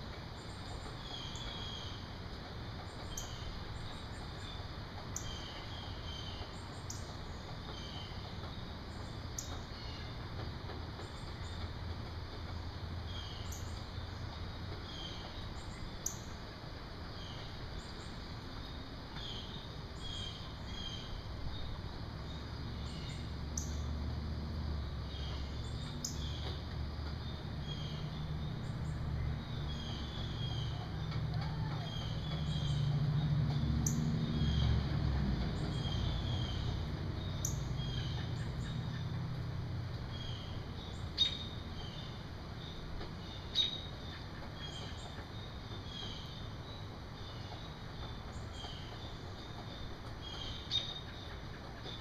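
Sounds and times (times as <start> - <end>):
outdoor background noise: 0.0 - 52.0
birds chirping: 24.7 - 52.0.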